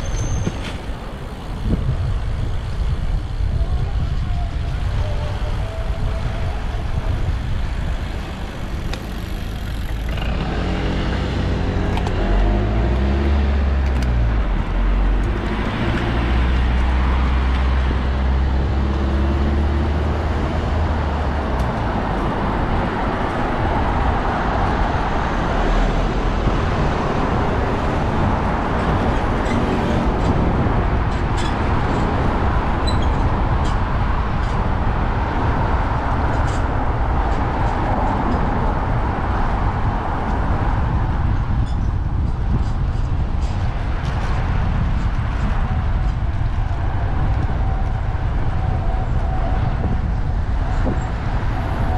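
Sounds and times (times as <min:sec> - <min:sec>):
road and wind noise: 0:00.0 - 0:51.9
vehicle engine running: 0:07.8 - 0:29.3.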